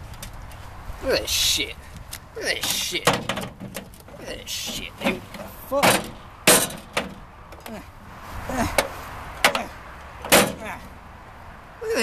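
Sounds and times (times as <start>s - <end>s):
microwave parts knocking and clunking: 2.6s - 7.7s, 8.8s - 10.6s
person grunting: 7.7s - 8.8s.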